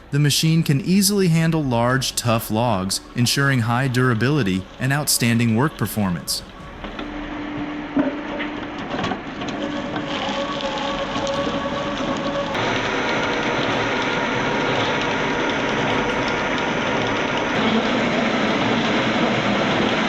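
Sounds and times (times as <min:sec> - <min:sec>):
mechanical whine: 0:00.0 - 0:20.0
wood-processing machinery clatter: 0:01.4 - 0:20.0.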